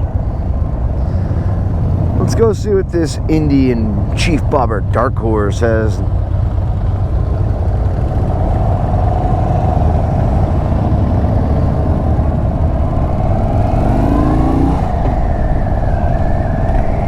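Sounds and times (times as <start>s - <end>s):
motorcycle engine accelerating: 6.1s - 17.0s.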